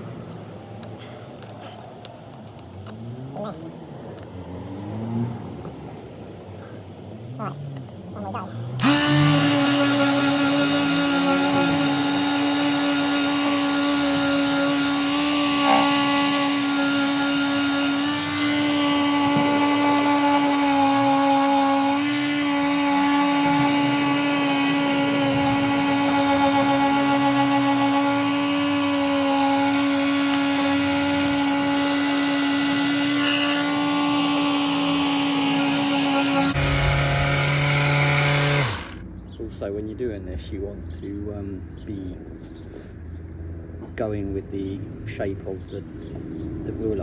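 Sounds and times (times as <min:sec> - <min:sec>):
electric sander hum: 0:08.8 - 0:39.0.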